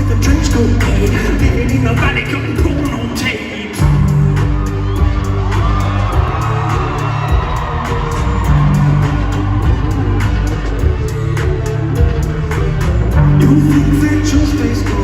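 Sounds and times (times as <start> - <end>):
heavy bass: 0.0 - 15.0
live band playing pop song: 0.0 - 15.0
person singing: 13.3 - 15.0.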